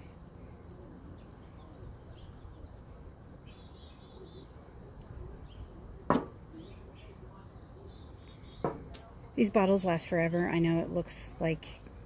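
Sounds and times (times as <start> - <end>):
faint bird chirps: 0.6 - 4.7.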